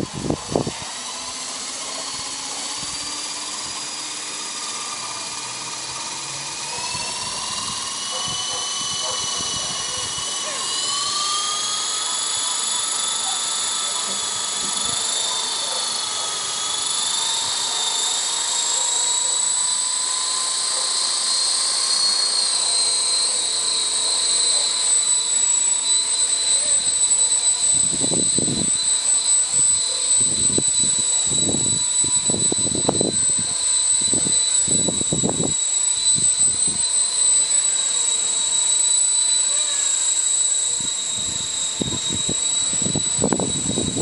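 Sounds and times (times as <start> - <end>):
model helicopter rotor whine: 0.0 - 44.0
wind buffeting microphone: 6.9 - 10.3, 41.2 - 44.0.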